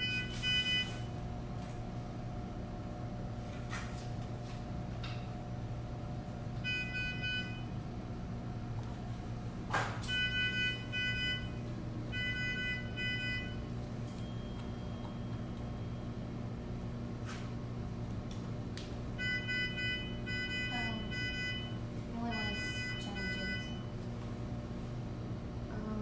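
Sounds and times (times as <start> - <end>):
electronic alarm beeping: 0.0 - 1.2, 6.6 - 7.7, 10.0 - 16.1, 19.2 - 23.9
low equipment hum: 0.0 - 26.0.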